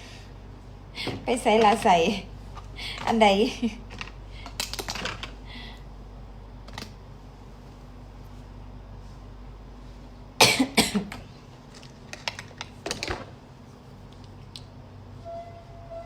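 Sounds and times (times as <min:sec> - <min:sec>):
person coughing: 0:10.4 - 0:11.2.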